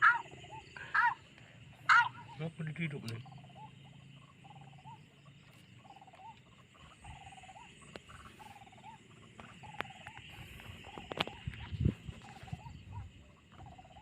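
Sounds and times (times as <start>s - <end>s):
waterhen calling: 0.0s - 10.3s
night insect chorus: 0.0s - 14.0s.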